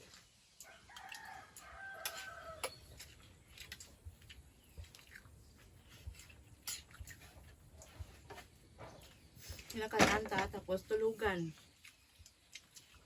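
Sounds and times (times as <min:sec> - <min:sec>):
rooster crowing: 0:00.6 - 0:02.7.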